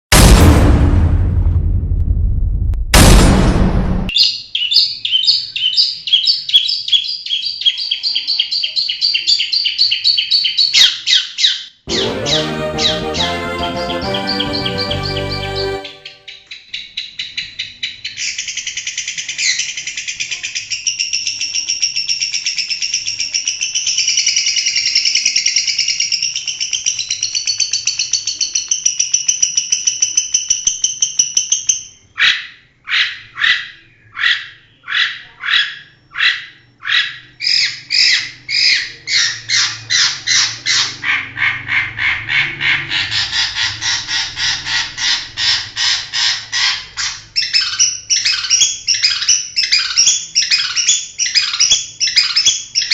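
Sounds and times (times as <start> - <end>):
bird sharp repeated notes: 11.9 - 16.7.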